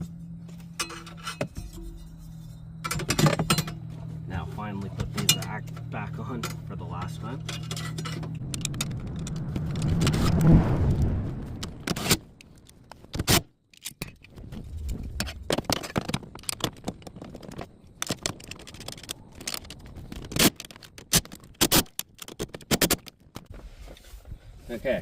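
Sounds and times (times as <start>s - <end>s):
car interior parts scraping: 0.0s - 10.6s
sharp clicks and knocks: 4.8s - 10.4s, 11.6s - 23.5s.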